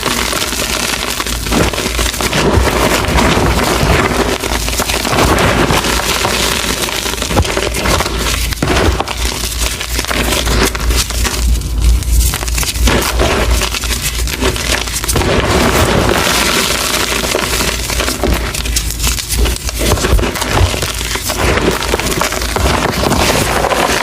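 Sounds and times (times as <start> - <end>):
chalk crunching: 0.9 - 24.0.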